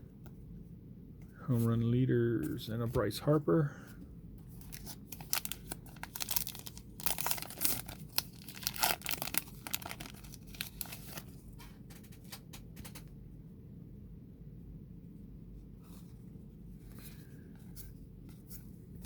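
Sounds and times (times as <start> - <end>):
cards rustling and clicking: 4.5 - 13.0.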